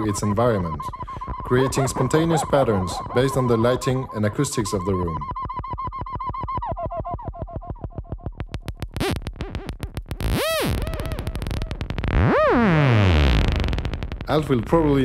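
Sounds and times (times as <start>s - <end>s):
synthesizer pulsing tone: 0.0s - 5.4s, 6.7s - 15.0s
rapid synth clicks: 7.3s - 15.0s
synth tone sweeping: 10.2s - 14.2s.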